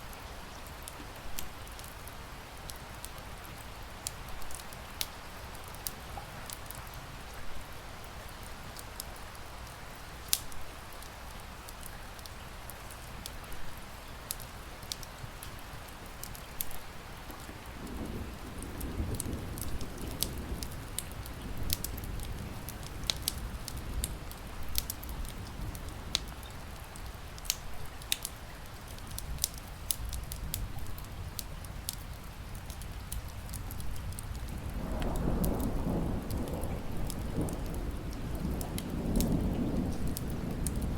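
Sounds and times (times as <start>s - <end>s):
rain pattering: 0.0s - 40.9s
wood fire crackling: 0.0s - 40.9s
thunder rumbling: 17.3s - 26.4s, 33.8s - 40.9s.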